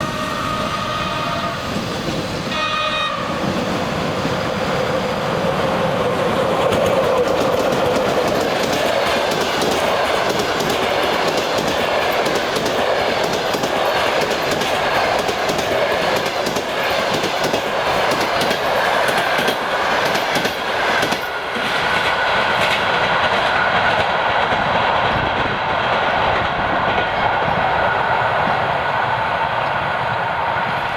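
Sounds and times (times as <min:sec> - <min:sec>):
locomotive horn blasts: 0:00.0 - 0:01.8, 0:02.5 - 0:03.4
train wheels clicking over rail joints: 0:03.3 - 0:27.6.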